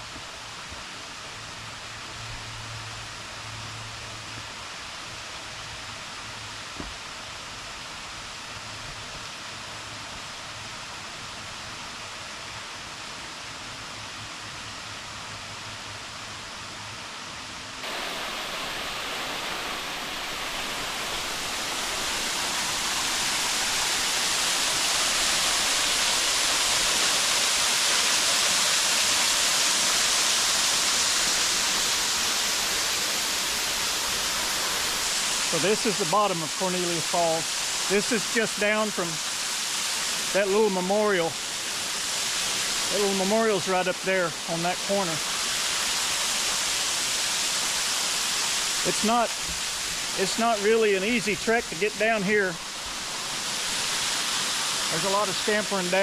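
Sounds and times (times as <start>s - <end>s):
waterfall rushing: 17.8s - 56.0s.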